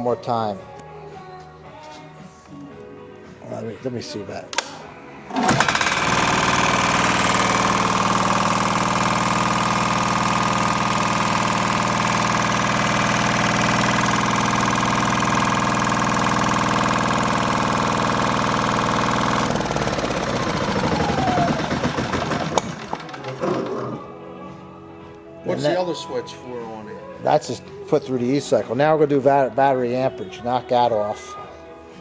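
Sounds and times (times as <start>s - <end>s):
small diesel engine running: 5.3s - 23.7s
falling whine of engine stopping: 5.3s - 23.8s.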